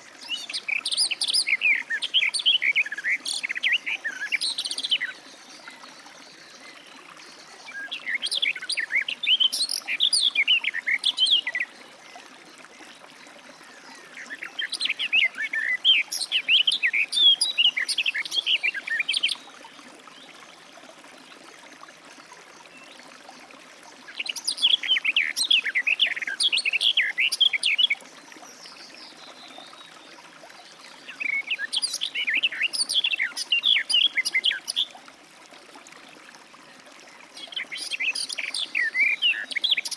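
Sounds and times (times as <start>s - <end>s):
bird warbling song: 0.0s - 7.0s, 13.6s - 19.7s, 24.1s - 35.0s, 37.4s - 39.9s.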